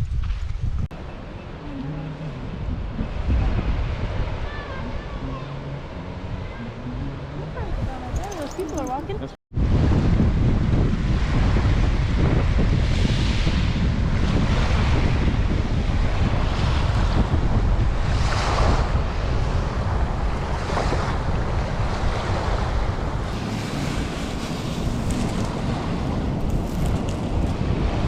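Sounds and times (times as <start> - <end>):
wind buffeting microphone: 0.0 - 28.0
ocean surf washing: 1.0 - 9.0, 11.0 - 28.0.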